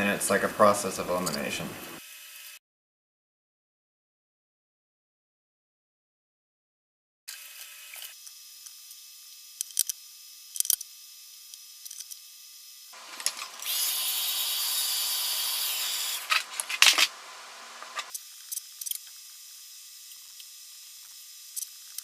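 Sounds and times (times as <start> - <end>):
heat gun blowing: 13.0 - 18.1.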